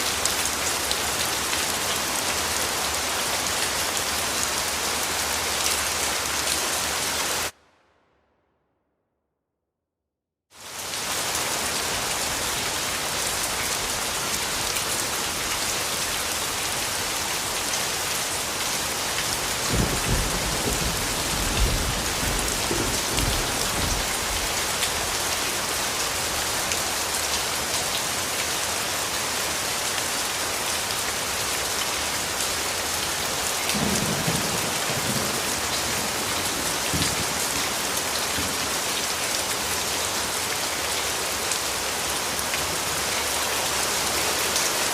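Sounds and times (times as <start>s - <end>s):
steady rain falling: 0.0s - 7.6s, 10.5s - 44.9s
distant thunder rumbling: 19.7s - 24.5s, 33.8s - 37.8s.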